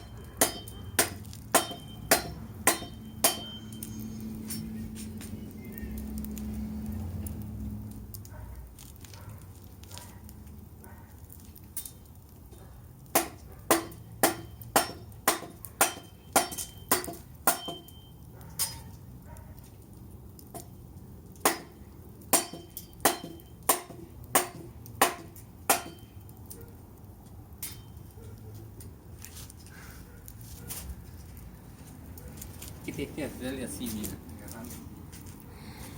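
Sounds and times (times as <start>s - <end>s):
machete chopping wood: 0.4s - 3.6s, 13.1s - 17.8s, 21.4s - 26.0s.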